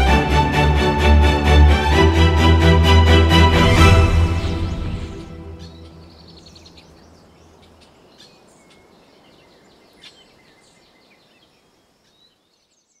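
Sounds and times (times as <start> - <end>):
low music notes: 0.0 - 6.3
soft outdoor hiss: 3.9 - 13.0
small birds chirping: 4.4 - 13.0.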